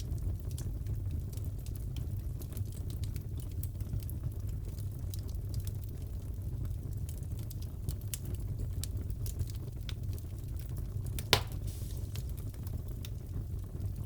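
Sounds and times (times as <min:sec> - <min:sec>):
wood fire crackling: 0:00.0 - 0:14.0
loud fire pop: 0:11.2 - 0:12.4.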